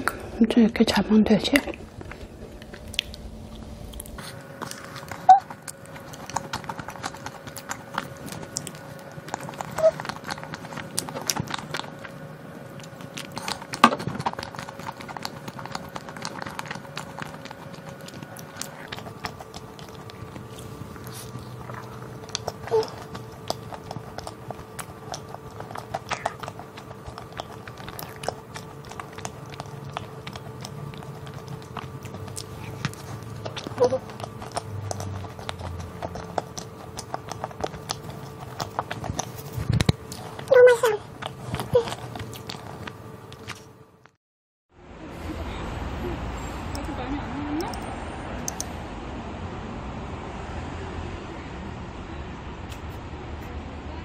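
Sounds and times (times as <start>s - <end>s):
chewing crumbly pastry: 1.4s - 44.2s.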